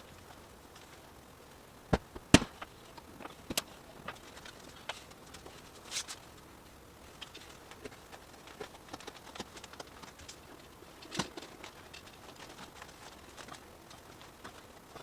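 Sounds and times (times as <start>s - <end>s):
loud knock: 1.9s - 2.6s.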